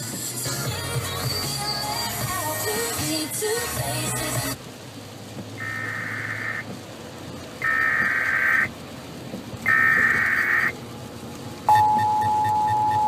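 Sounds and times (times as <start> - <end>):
steady attention tone: 11.7 - 13.0.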